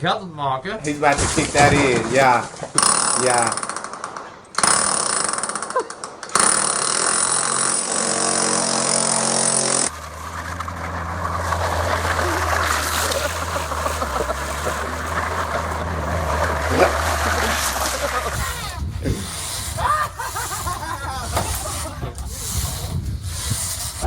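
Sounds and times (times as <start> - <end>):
loud motorised machine running: 0.9 - 24.0
low engine hum: 9.8 - 24.0.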